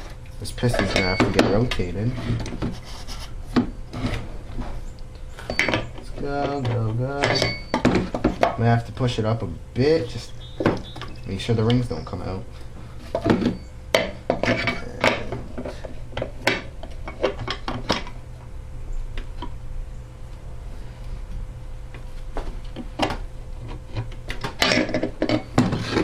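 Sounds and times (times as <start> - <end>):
faint steady hum: 0.0 - 26.0
metal engine parts clinking: 0.6 - 1.5, 5.4 - 8.6, 24.5 - 26.0.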